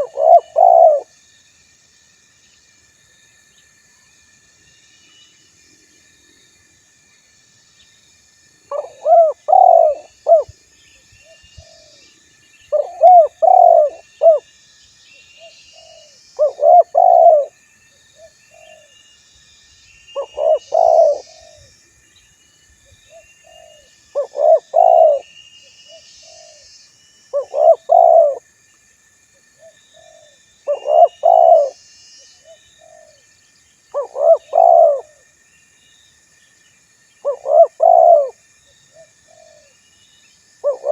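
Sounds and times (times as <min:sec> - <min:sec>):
dove cooing: 0:00.0 - 0:01.1, 0:08.7 - 0:10.5, 0:12.7 - 0:14.4, 0:15.8 - 0:17.5, 0:20.2 - 0:21.7, 0:23.1 - 0:25.3, 0:27.4 - 0:28.4, 0:30.0 - 0:31.8, 0:34.0 - 0:35.2, 0:37.2 - 0:38.4, 0:40.6 - 0:40.9
small birds chirping: 0:08.7 - 0:14.5, 0:15.1 - 0:17.5, 0:20.1 - 0:21.7, 0:23.0 - 0:28.4, 0:30.0 - 0:33.2, 0:33.9 - 0:35.1, 0:37.2 - 0:38.3.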